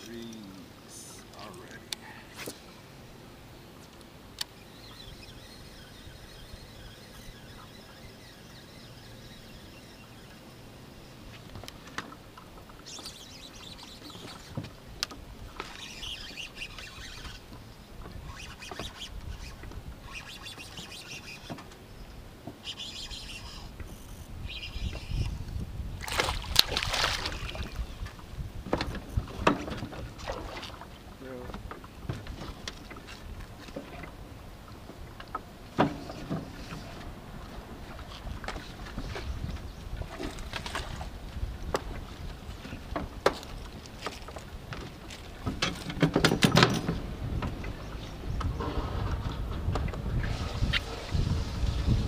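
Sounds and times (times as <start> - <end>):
birds chirping: 4.3 - 25.4, 47.4 - 48.7.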